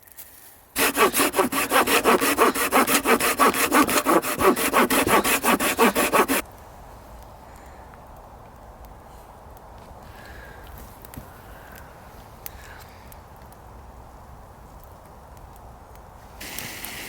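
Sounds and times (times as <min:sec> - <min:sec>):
hand saw cutting wood: 0:00.8 - 0:06.4.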